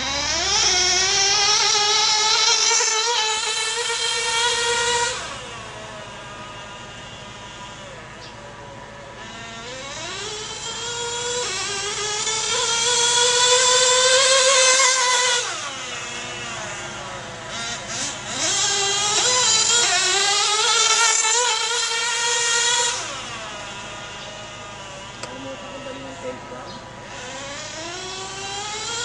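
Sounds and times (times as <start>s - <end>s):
low idle drone: 0.0s - 29.0s
nitro engine revving high: 0.0s - 29.0s.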